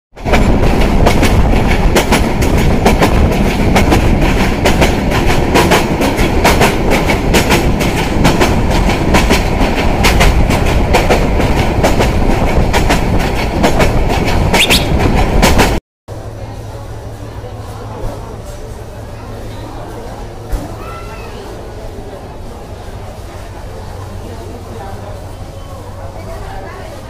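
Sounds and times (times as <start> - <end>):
train rumbling: 0.1 - 27.0
wheels clacking over rail joints: 0.2 - 15.8.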